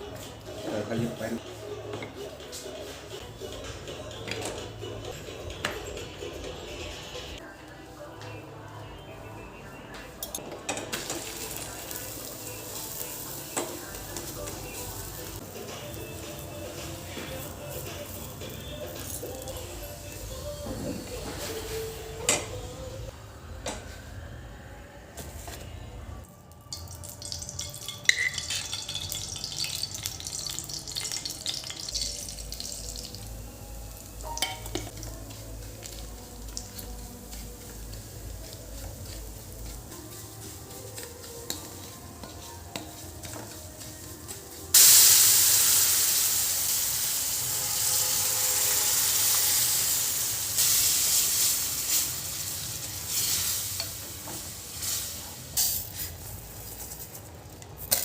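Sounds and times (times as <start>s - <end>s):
food sizzling in hot oil: 10.9s - 20.5s, 26.7s - 57.1s.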